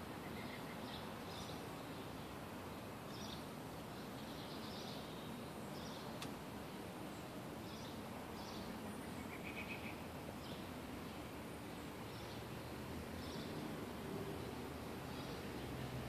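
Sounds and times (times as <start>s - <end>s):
outdoor background hiss: 0.0s - 16.0s
small birds chirping: 0.0s - 16.0s
faint click: 6.2s - 6.4s.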